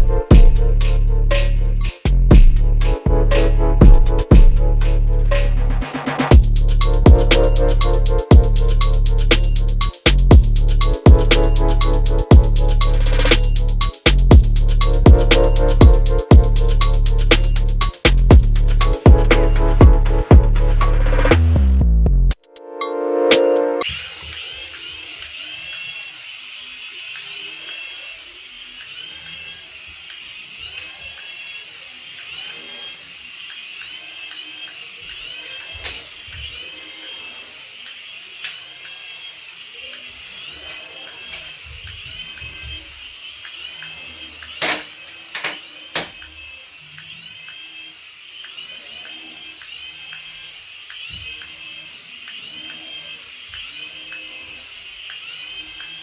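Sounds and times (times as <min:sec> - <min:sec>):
small electric motor whining: 0:06.3 - 0:21.3, 0:23.4 - 0:56.0
sharp clicks: 0:06.6 - 0:19.0.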